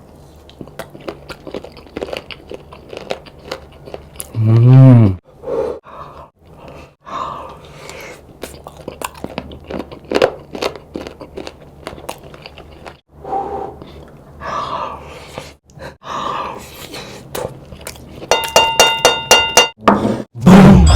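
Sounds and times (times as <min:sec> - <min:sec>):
close chewing with crunches: 0:00.1 - 0:04.4, 0:07.5 - 0:13.1.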